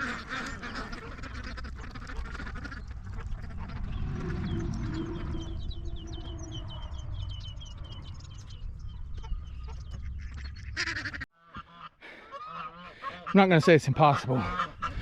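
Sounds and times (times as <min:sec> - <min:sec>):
ducks and geese calling: 0:00.0 - 0:15.0
steady low rumble: 0:01.2 - 0:10.9.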